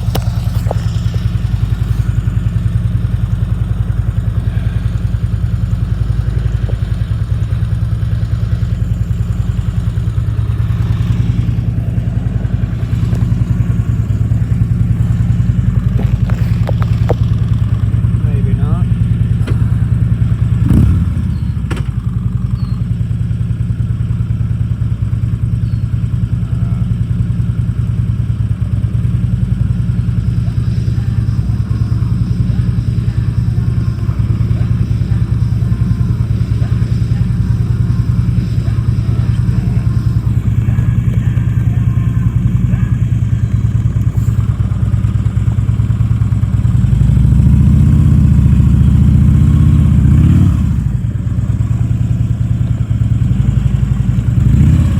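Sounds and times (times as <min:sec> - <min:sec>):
motorcycle engine idling: 0:00.0 - 0:54.9
sharp clunk: 0:21.7 - 0:22.0.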